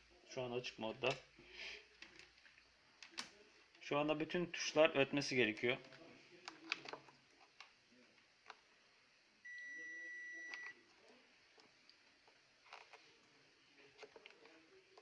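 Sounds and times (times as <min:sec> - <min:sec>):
multimeter continuity beep: 0:09.4 - 0:10.8.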